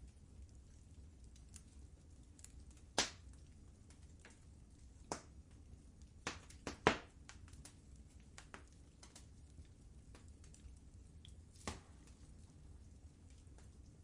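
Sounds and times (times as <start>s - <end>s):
wood fire crackling: 0.0s - 14.0s
fire pops: 2.3s - 12.4s.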